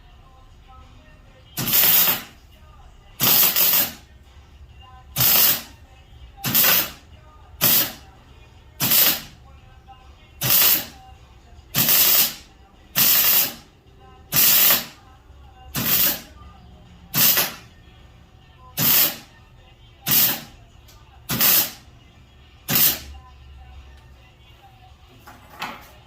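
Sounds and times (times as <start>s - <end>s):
welder hissing bursts: 1.6s - 2.3s, 3.2s - 4.0s, 5.2s - 5.7s, 6.4s - 7.0s, 7.6s - 8.0s, 8.8s - 9.3s, 10.4s - 10.9s, 11.8s - 12.4s, 13.0s - 13.6s, 14.3s - 15.0s, 15.8s - 16.3s, 17.1s - 17.6s, 18.8s - 19.3s, 20.1s - 20.5s, 21.3s - 21.8s, 22.7s - 23.1s.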